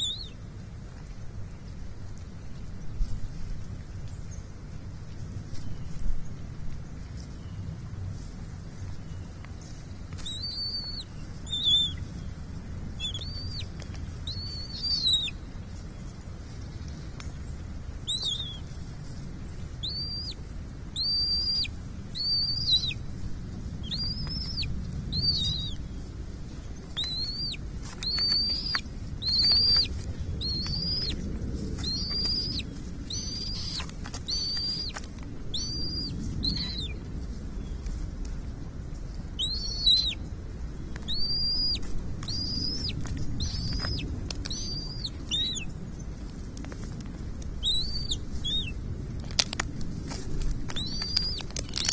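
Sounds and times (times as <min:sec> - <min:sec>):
eagle calling: 0:00.0 - 0:00.4, 0:10.2 - 0:12.2, 0:13.0 - 0:15.5, 0:18.1 - 0:18.7, 0:19.8 - 0:20.4, 0:21.0 - 0:23.1, 0:23.8 - 0:25.8, 0:26.9 - 0:37.0, 0:39.4 - 0:40.2, 0:41.0 - 0:45.7, 0:47.6 - 0:48.8, 0:50.7 - 0:51.9
low rumble: 0:00.0 - 0:51.9.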